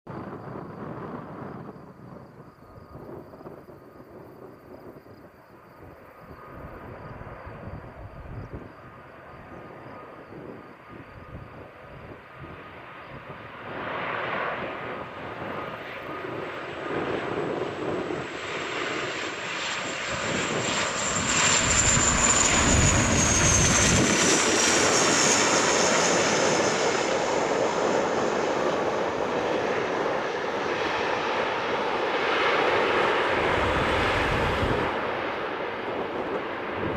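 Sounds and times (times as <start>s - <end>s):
turboprop airliner passing by: 0.1s - 36.9s
high engine whine: 20.3s - 28.3s.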